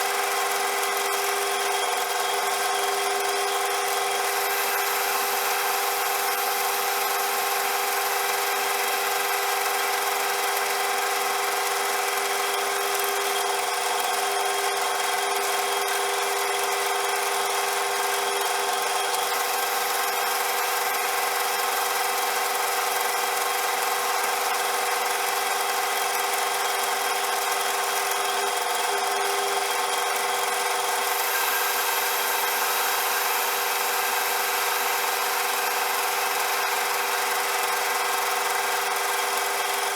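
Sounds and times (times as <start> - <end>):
metal lathe whining: 0.0 - 39.9.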